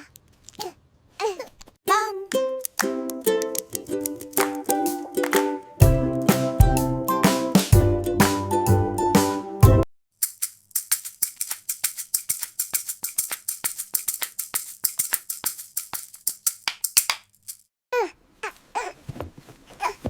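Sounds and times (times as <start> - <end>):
fast bright percussive taps: 10.2 - 17.3.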